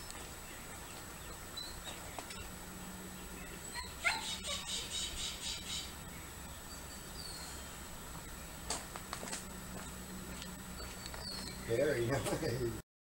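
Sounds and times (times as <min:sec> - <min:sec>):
birds chirping: 0:00.0 - 0:12.8
steady low hum: 0:00.0 - 0:12.8
bird rising call: 0:00.4 - 0:06.0.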